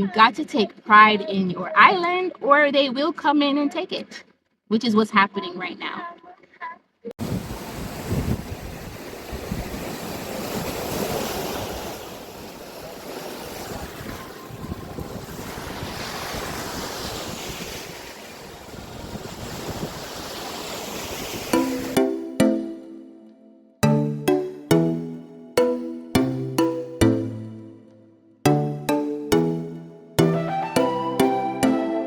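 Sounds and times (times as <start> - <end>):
wind rumbling on microphone: 7.2 - 12.5, 13.6 - 21.3.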